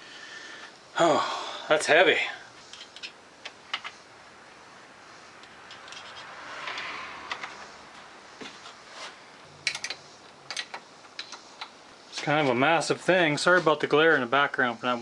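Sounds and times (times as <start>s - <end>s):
metal parts clicking and tapping: 2.7s - 4.0s, 5.4s - 7.6s, 9.6s - 11.8s.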